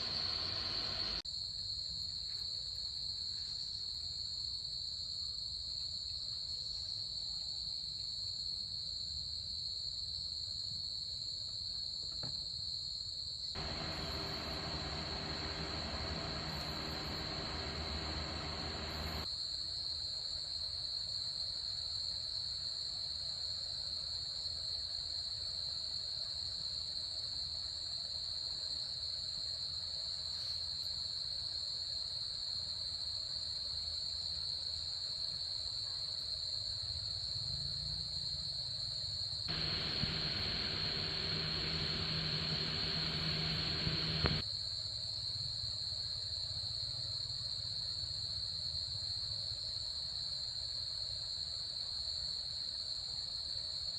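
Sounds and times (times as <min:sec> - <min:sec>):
high-pitched insect chorus: 0:00.0 - 0:01.2, 0:13.6 - 0:19.3, 0:39.5 - 0:44.4
low hum: 0:00.0 - 0:01.2, 0:13.6 - 0:19.2, 0:39.5 - 0:44.4
broad rushing noise: 0:13.6 - 0:19.2, 0:39.5 - 0:44.4.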